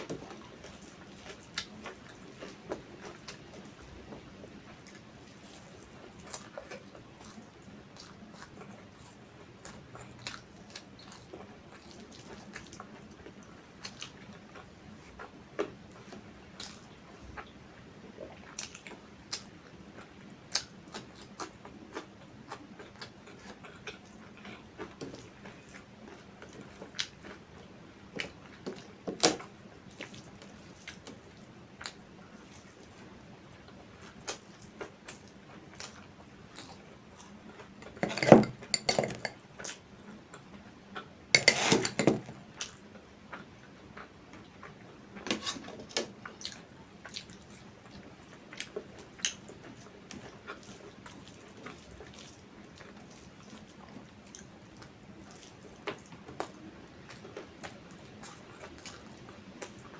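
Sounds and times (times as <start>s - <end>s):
chewing and smacking food: 0.0s - 59.9s
dishes and cutlery clattering: 37.8s - 39.4s, 41.4s - 42.3s.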